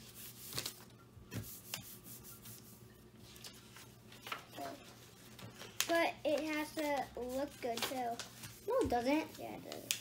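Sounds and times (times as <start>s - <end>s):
paper being folded and creased: 0.0s - 0.9s, 3.2s - 10.0s.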